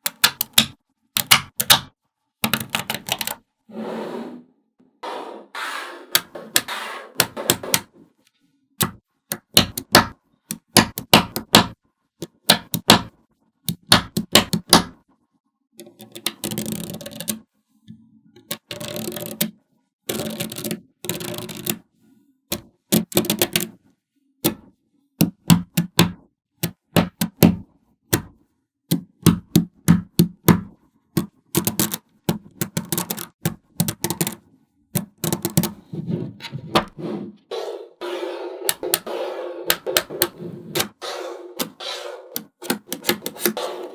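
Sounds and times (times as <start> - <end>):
magnetic balls clicking together: 0.0 - 3.4, 8.8 - 13.1, 13.7 - 14.9, 15.8 - 17.4, 18.5 - 19.5, 20.1 - 21.8, 22.5 - 23.7, 25.2 - 34.4, 35.0 - 35.8, 38.7 - 39.1, 39.7 - 41.0, 41.6 - 43.9.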